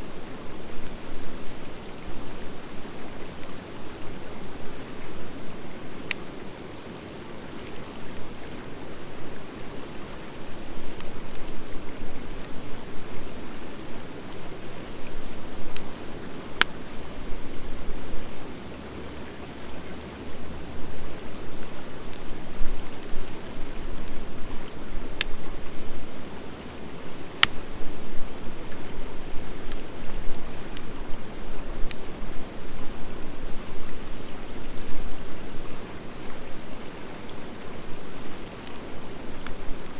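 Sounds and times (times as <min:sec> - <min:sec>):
wood fire crackling: 0:00.0 - 0:39.9
sharp pops of fire: 0:27.4 - 0:27.7.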